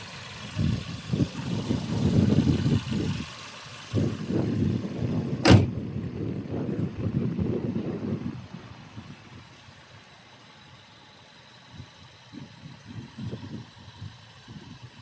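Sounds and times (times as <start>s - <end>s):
low rumbles: 0.0s - 10.0s
faint car engine idling: 0.0s - 15.0s.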